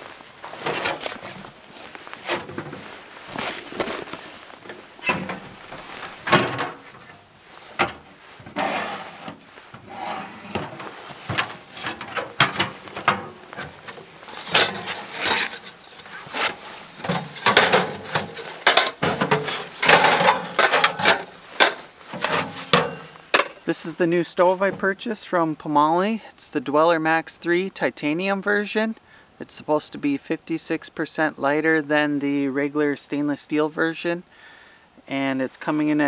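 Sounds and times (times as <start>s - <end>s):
rustling: 0.0s - 25.0s.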